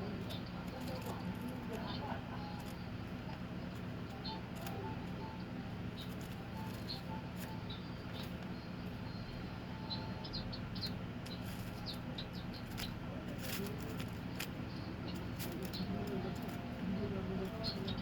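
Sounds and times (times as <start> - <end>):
small bird chirping: 0.0 - 18.0
steady low hum: 0.0 - 18.0
paper card clicks and crackles: 0.2 - 1.8, 3.7 - 4.9, 6.0 - 7.6, 12.6 - 16.7.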